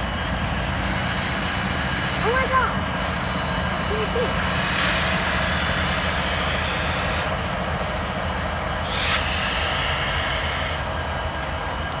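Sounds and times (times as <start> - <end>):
broad noisy rumble: 0.0 - 12.0
diesel locomotive engines throbbing: 0.0 - 12.0.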